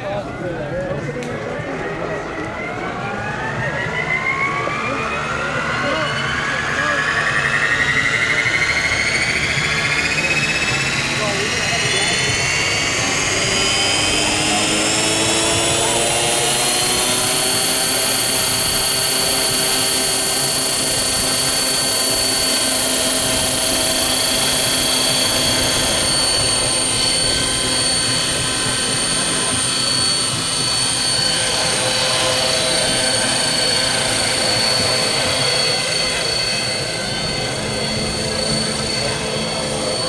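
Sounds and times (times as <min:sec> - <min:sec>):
model aircraft engine whine: 0:00.0 - 0:40.0.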